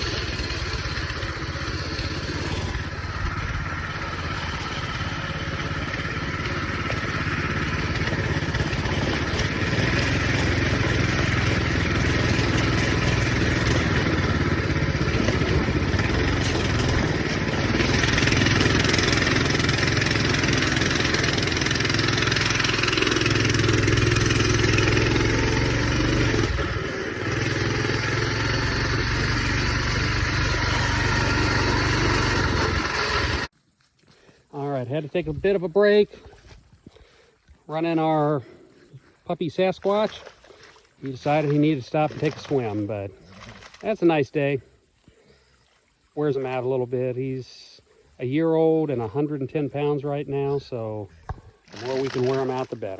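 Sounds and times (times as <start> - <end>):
minibike engine running: 0.0 - 33.5, 50.3 - 52.9.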